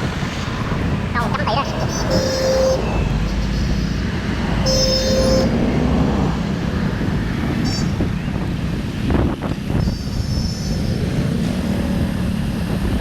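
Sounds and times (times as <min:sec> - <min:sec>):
road traffic noise: 0:00.0 - 0:13.0
wind rumble: 0:00.0 - 0:13.0
vehicle horn beeps: 0:01.2 - 0:05.9, 0:07.6 - 0:08.0, 0:09.8 - 0:10.8.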